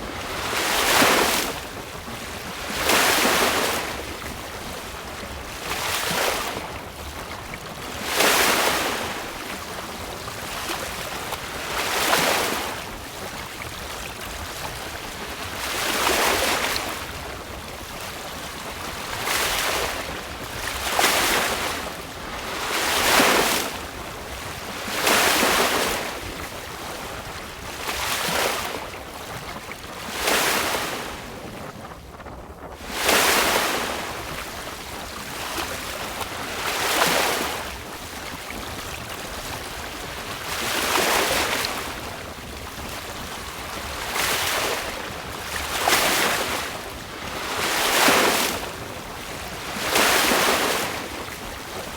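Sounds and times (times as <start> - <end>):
wind: 0.0 - 51.9
water splashing along boat hull: 32.8 - 51.9.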